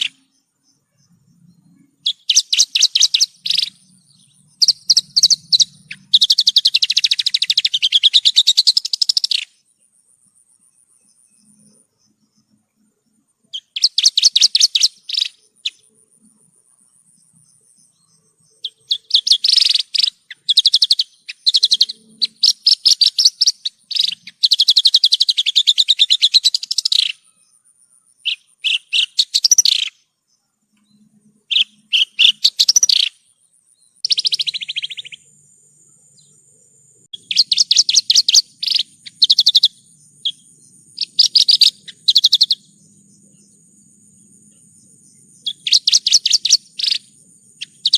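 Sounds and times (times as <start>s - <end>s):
lark singing: 0.0s - 9.6s, 13.5s - 16.0s, 17.2s - 30.1s, 30.8s - 47.9s.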